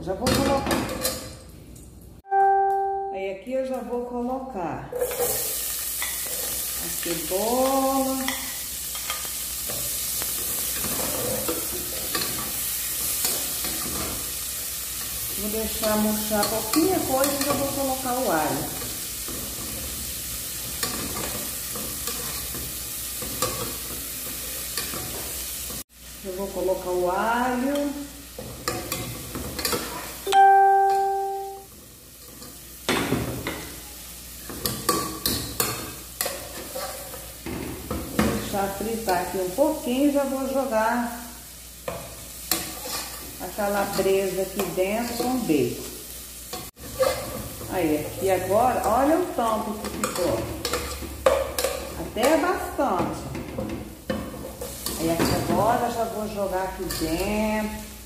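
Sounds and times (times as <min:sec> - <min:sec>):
clear ringing note: 0:02.2 - 0:03.4, 0:30.3 - 0:31.7
onion sizzling in fat: 0:05.0 - 0:58.0.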